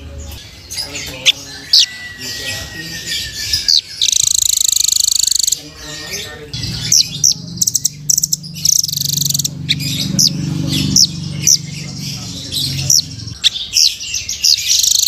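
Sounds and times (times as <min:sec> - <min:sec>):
bird chirps and buzzy trills: 0:00.0 - 0:15.0
steady low hum: 0:06.3 - 0:13.4.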